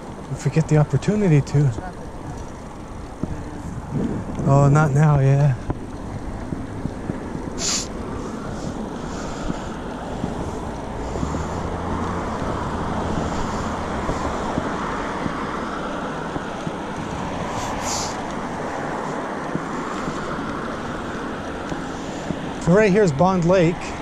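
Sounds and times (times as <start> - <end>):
road traffic passing: 0.0 - 24.0
wind buffeting microphone: 0.0 - 24.0
brief high hiss: 7.6 - 7.9.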